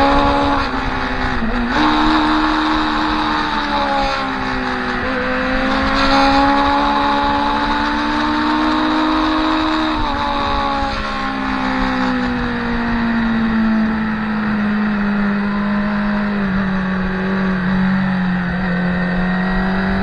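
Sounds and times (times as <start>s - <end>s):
wind rush: 0.0s - 15.5s
motorcycle engine pulling: 0.0s - 20.0s.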